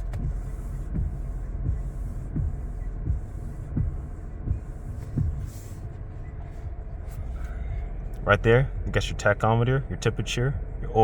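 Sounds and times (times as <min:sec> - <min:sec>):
windshield wipers thumping: 0:00.0 - 0:08.2
steady low hum: 0:00.0 - 0:11.0.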